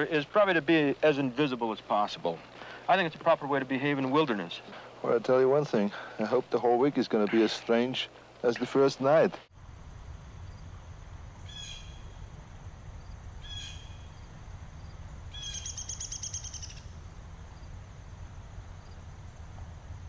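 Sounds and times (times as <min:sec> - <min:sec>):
outdoor background noise: 0:00.0 - 0:20.0
songbird calls and trill: 0:11.4 - 0:12.3, 0:13.4 - 0:14.3, 0:15.3 - 0:17.0.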